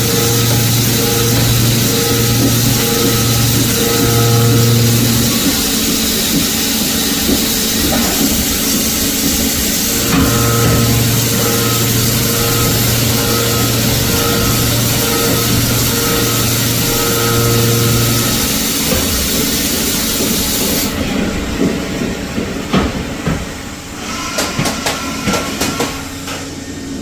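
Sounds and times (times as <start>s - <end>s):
low hum: 0.0s - 19.8s
milling machine cutting steel: 0.0s - 21.0s.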